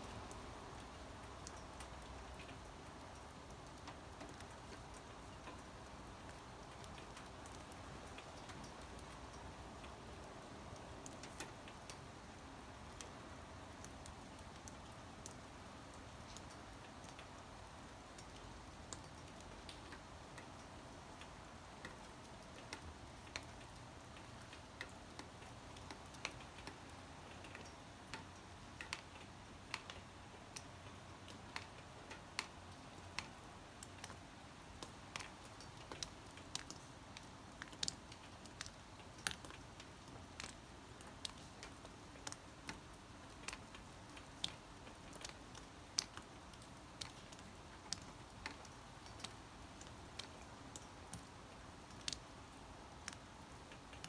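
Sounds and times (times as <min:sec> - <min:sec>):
faint steady hiss: 0:00.0 - 0:54.0
raindrops tapping: 0:34.8 - 0:51.3.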